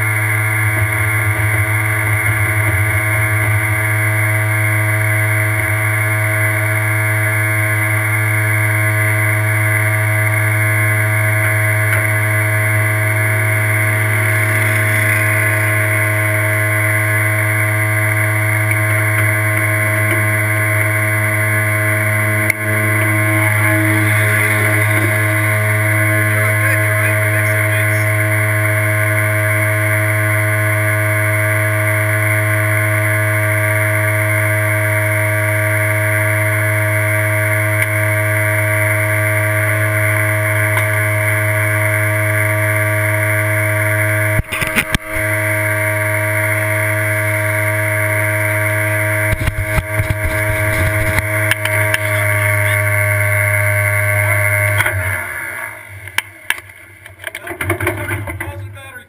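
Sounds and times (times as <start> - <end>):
race car engine running: 0.0 - 58.7.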